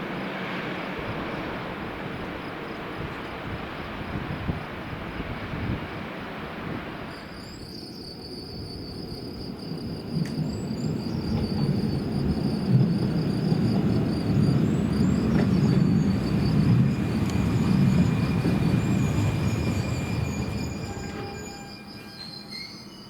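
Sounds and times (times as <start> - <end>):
train rumbling: 0.0 - 23.0
high wheel squeal: 7.1 - 23.0.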